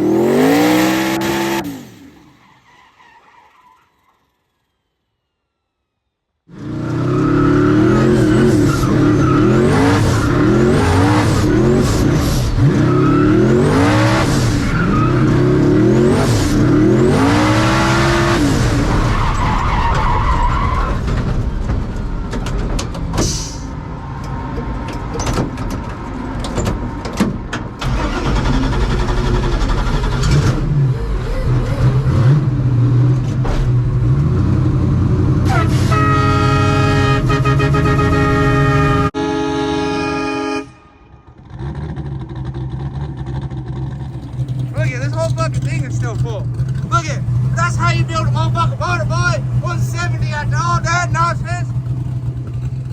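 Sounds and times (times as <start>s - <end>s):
race car engine revving: 0.0s - 2.3s, 6.5s - 19.4s, 41.4s - 52.9s.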